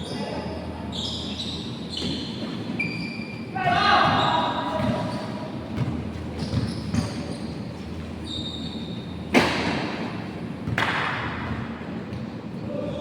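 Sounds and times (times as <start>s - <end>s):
sneaker squeaks: 0.0s - 9.8s
low gym background noise: 0.0s - 13.0s.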